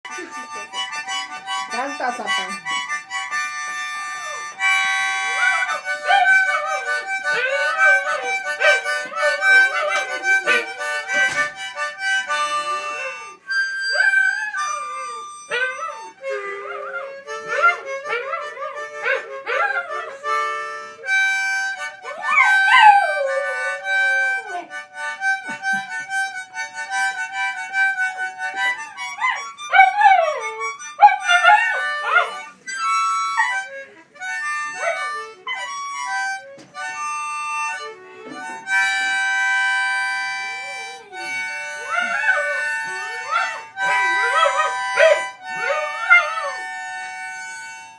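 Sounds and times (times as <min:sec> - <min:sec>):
harmonica playing a tune: 0:00.0 - 0:47.9
dog howling: 0:05.2 - 0:10.8, 0:12.8 - 0:20.1, 0:22.0 - 0:24.8, 0:29.1 - 0:32.5, 0:34.7 - 0:35.9, 0:41.8 - 0:47.1.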